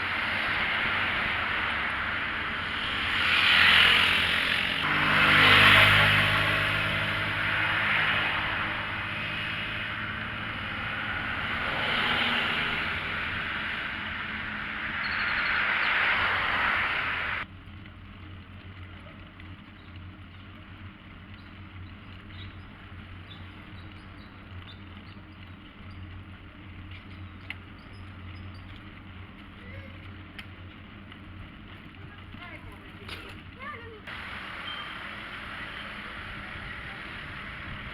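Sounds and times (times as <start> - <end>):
vehicles passing: 0.0 - 37.9
faint ticks: 26.8 - 31.9.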